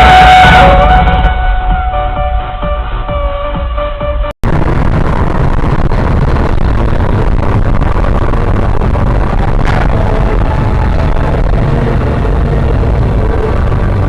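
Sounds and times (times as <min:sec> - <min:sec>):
car engine and road noise: 0:03.8 - 0:14.0.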